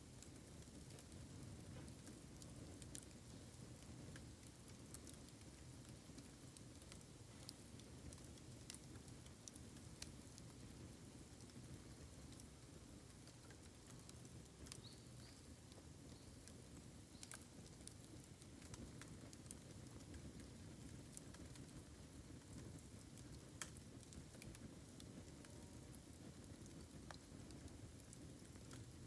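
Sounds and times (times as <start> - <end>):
bonfire crackling: 0.0 - 29.0.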